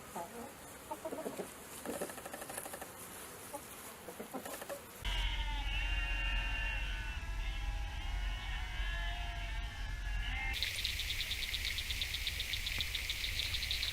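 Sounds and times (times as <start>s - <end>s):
chickens clucking and clicking: 0.2s - 4.9s
high chirping and peeping: 10.6s - 13.9s.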